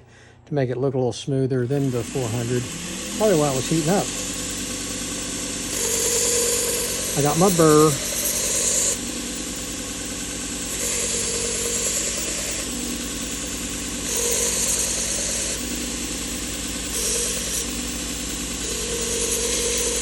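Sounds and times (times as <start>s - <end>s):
belt grinder motor hum: 1.6s - 20.0s.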